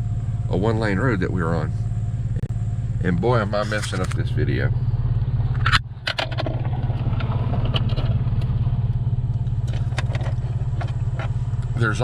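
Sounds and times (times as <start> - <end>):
truck engine and road drone: 0.0 - 12.0
clicks and rattles in cab: 5.5 - 8.6, 9.3 - 11.8.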